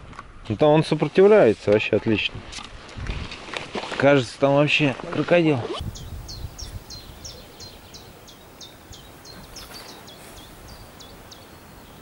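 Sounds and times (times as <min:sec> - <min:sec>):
small bird singing: 0:05.8 - 0:12.0.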